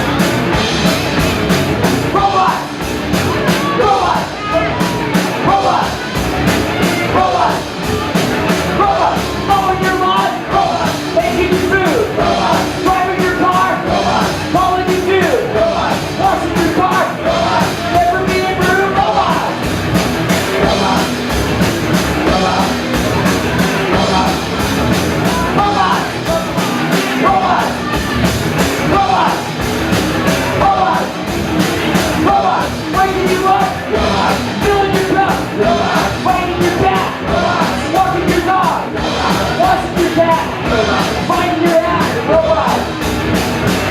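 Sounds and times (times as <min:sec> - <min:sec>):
loud rock music: 0:00.0 - 0:43.9
person yelling singing: 0:02.1 - 0:08.1, 0:08.7 - 0:19.6, 0:20.4 - 0:21.3, 0:22.2 - 0:29.6, 0:30.2 - 0:31.3, 0:31.9 - 0:43.0.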